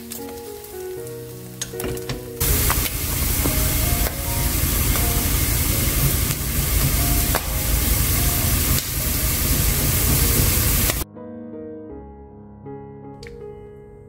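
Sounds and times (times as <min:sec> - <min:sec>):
meat sizzling in a frying pan: 0:00.0 - 0:01.8, 0:02.4 - 0:11.0
soft background music: 0:00.0 - 0:14.0.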